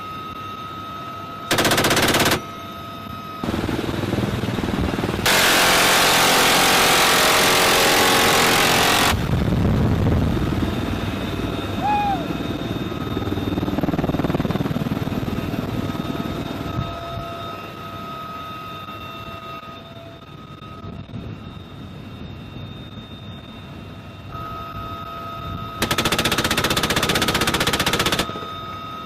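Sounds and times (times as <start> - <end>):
helicopter rumble: 0.0 - 29.0
turbine whine: 0.0 - 29.0
rapid gunfire: 1.5 - 2.4, 3.4 - 9.3, 25.8 - 28.5.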